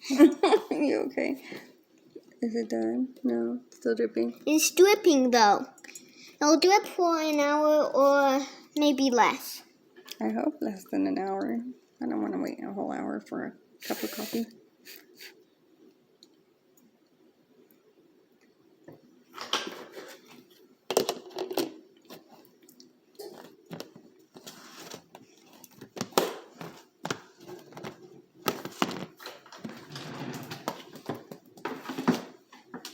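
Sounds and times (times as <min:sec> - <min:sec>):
objects knocking and clattering: 0:20.9 - 0:22.2.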